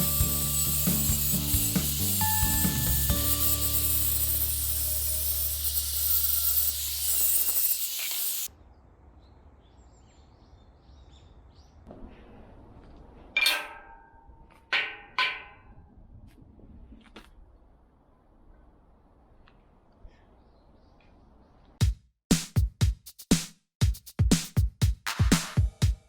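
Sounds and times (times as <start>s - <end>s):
clanks of struck steel: 13.4s - 15.8s.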